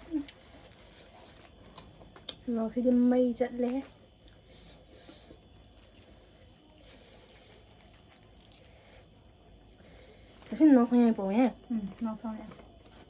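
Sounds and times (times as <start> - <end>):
person chewing and crunching: 0.0 - 2.5, 3.5 - 10.4.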